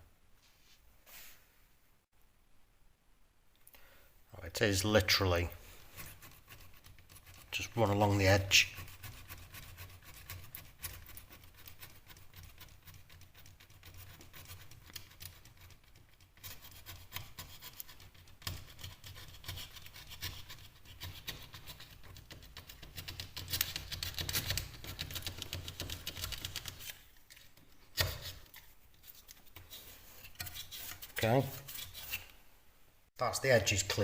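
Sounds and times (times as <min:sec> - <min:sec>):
tool scraping plasterboard edges: 0:06.0 - 0:27.0, 0:27.9 - 0:32.3.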